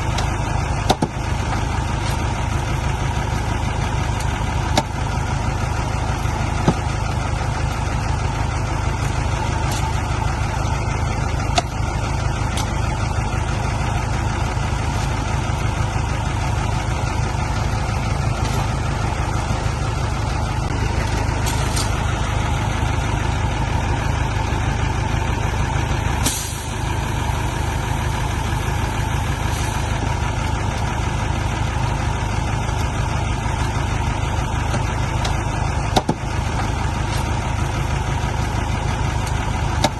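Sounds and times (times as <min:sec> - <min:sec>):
diesel truck engine rumbling: 0:00.0 - 0:39.9
air brake hiss: 0:26.2 - 0:26.8.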